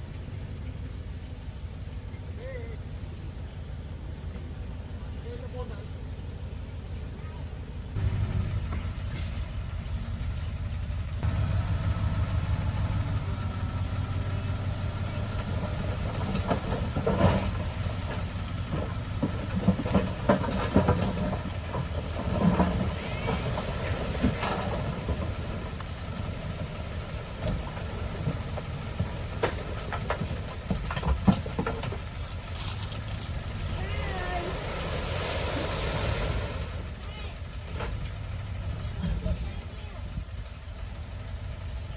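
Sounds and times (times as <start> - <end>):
diesel earthmoving machinery: 0.0 - 41.9
metallic clanks and knocks: 8.0 - 25.9.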